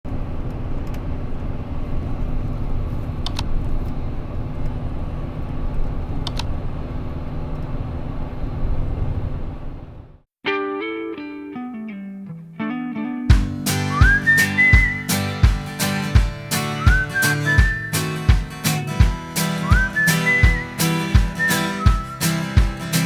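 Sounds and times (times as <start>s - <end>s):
brief clicks: 6.2s - 6.5s
guitar music: 10.4s - 23.0s.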